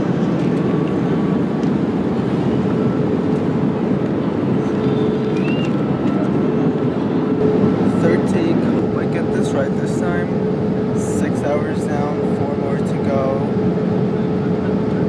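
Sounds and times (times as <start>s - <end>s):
engine and airflow rush: 0.0s - 15.0s
faint constant hum: 0.0s - 15.0s.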